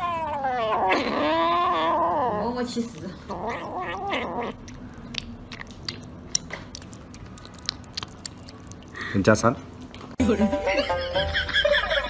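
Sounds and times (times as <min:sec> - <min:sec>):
cat crunching food: 0:03.8 - 0:09.3.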